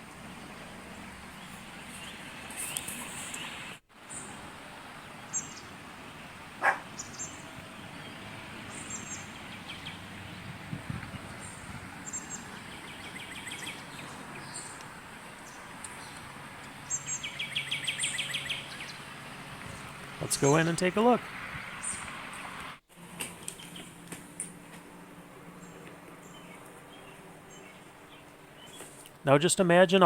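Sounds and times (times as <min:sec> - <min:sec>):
small birds chirping: 0:00.0 - 0:22.6, 0:23.4 - 0:24.3, 0:25.4 - 0:29.2
outdoor background noise: 0:00.0 - 0:30.0
rapid bird trill: 0:16.8 - 0:19.1.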